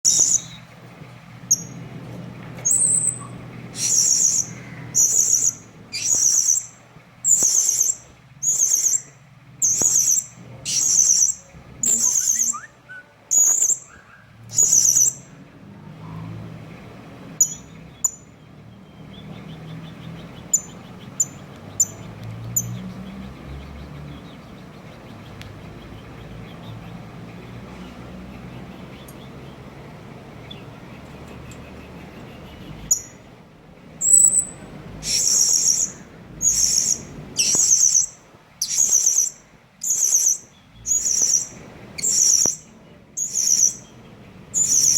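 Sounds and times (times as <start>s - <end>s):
parrot high-pitched calls: 0.0s - 0.7s, 2.6s - 15.4s, 34.0s - 43.9s, 44.5s - 44.9s.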